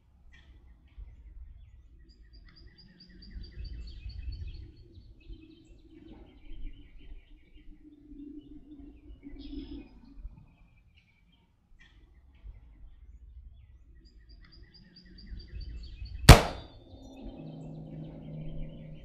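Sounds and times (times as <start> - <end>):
songbird chirping: 16.3 - 19.0.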